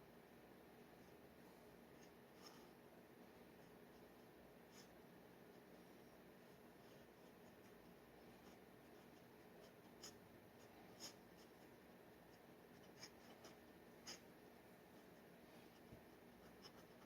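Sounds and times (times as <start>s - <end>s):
low steady hiss: 0.0s - 17.0s
pen nib scratching paper: 6.8s - 17.0s.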